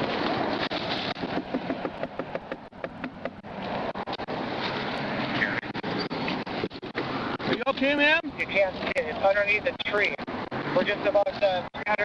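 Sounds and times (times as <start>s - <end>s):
rustling and scuffing through brush: 0.0s - 1.4s.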